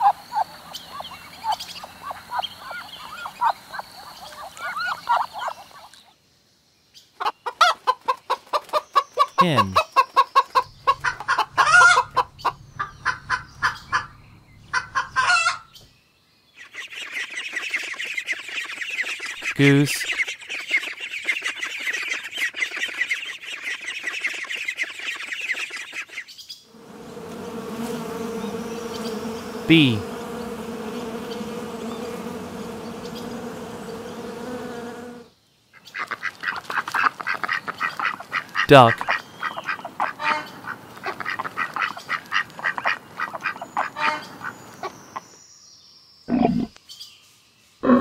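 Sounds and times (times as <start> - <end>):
chatter of many birds: 0.0 - 6.2, 16.5 - 35.2, 35.8 - 45.3
hen clucking: 7.2 - 15.7, 36.0 - 45.0
hen squawking cackle: 9.4 - 14.1, 14.7 - 15.6
bee buzzing: 10.6 - 15.3, 26.7 - 35.3.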